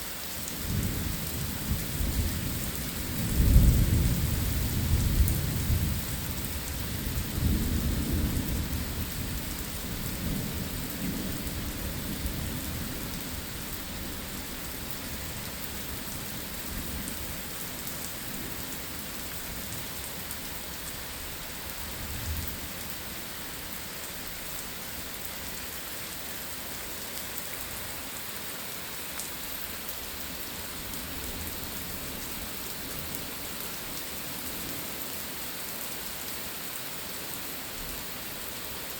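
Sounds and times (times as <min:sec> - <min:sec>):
steady rain: 0:00.0 - 0:38.9
thunder rumbling: 0:00.7 - 0:06.1.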